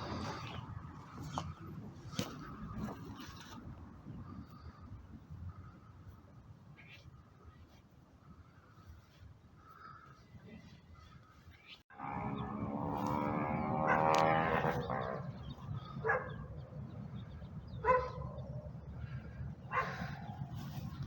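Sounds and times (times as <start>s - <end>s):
dog barking: 13.8s - 14.1s, 16.0s - 16.4s, 17.8s - 18.4s, 19.7s - 20.2s.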